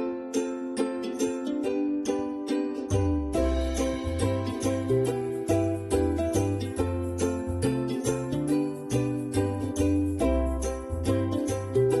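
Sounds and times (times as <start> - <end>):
upbeat tune with sleigh bell rhythm: 0.0 - 12.0
upbeat background music: 2.9 - 12.0.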